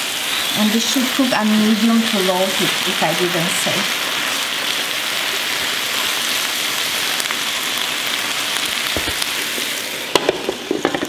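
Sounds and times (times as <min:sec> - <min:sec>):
vegetables sizzling in skillet: 0:00.0 - 0:11.0.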